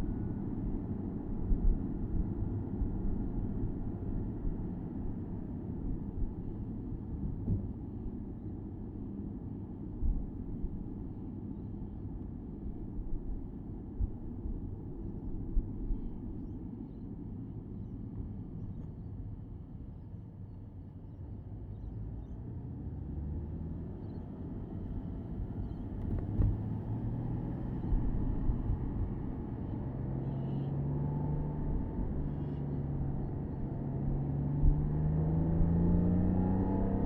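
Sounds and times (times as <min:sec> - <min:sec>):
road and tyre rumble: 0:00.0 - 0:37.0
car engine running: 0:25.2 - 0:29.4.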